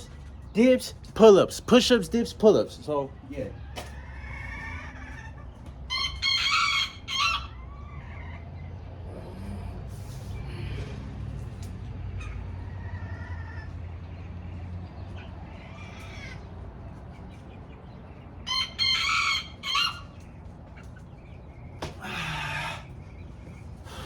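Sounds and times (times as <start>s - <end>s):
rooster crowing: 3.7s - 5.2s, 5.9s - 8.6s, 12.6s - 13.8s, 18.5s - 20.2s
faint bird calls: 14.9s - 24.0s.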